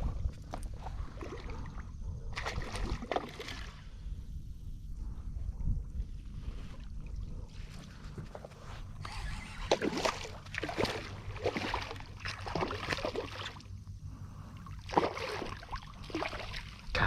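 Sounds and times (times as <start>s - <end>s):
fish splashing in water: 1.1s - 3.8s, 9.5s - 13.7s, 14.7s - 16.9s.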